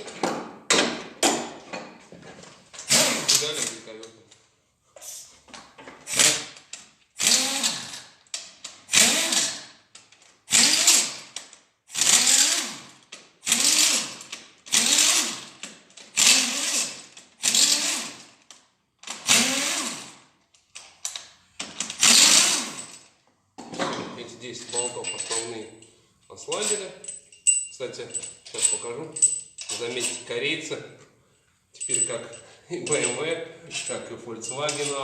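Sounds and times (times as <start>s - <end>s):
cordless power tool spinning bolts: 2.8s - 3.8s, 6.0s - 9.9s, 10.5s - 20.3s, 21.1s - 23.1s.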